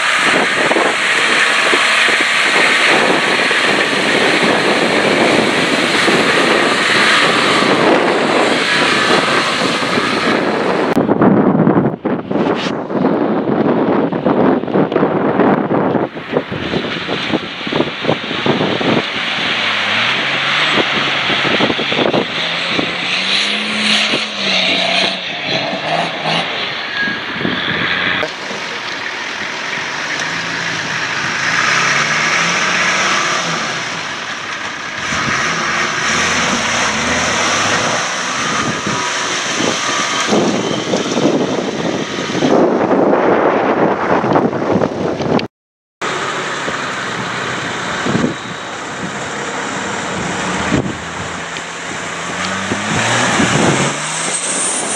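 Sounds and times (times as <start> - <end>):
diesel engine revving: 0.0 - 54.9.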